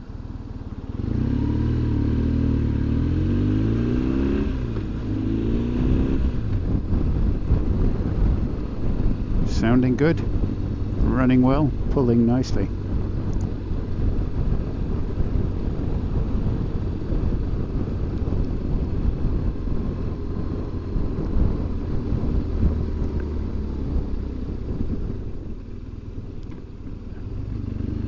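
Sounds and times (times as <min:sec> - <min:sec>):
motorcycle engine running: 0:00.0 - 0:28.0
man talking: 0:09.4 - 0:10.3, 0:11.0 - 0:12.7.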